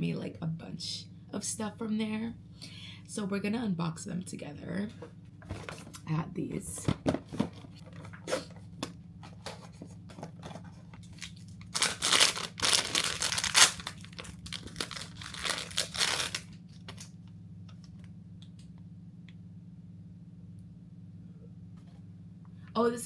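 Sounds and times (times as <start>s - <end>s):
steady low hum: 0.0s - 23.0s
packaging tearing and crinkling: 11.0s - 17.1s.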